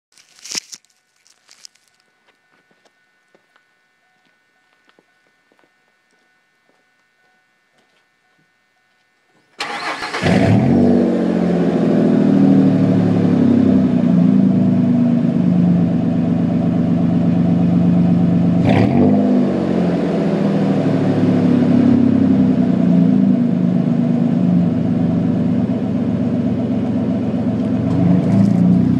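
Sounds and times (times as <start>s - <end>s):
truck engine starting: 9.6s - 14.3s.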